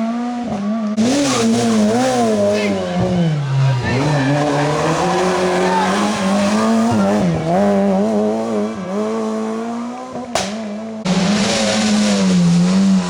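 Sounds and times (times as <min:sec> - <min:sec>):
rally car engine revving: 0:00.0 - 0:13.0
tyre squeal: 0:01.1 - 0:09.8
sharp crack: 0:10.3 - 0:10.8.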